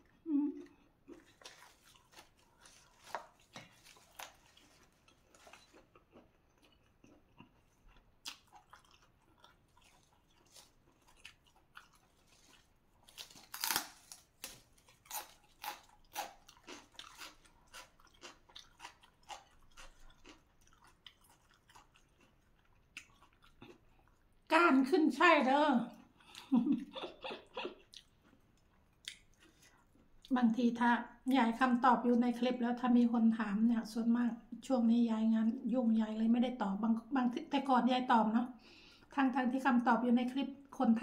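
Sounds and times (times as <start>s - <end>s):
person chewing crunchy vegetables: 0.0s - 24.4s, 27.4s - 30.3s.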